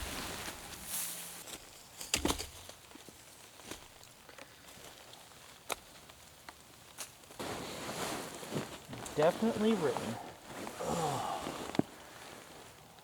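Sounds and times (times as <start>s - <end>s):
light rain patter: 3.6s - 13.0s.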